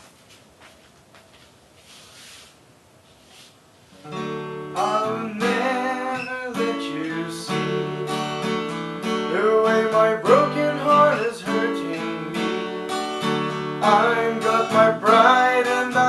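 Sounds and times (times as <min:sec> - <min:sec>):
acoustic guitar strumming and picking: 0:04.0 - 0:16.0.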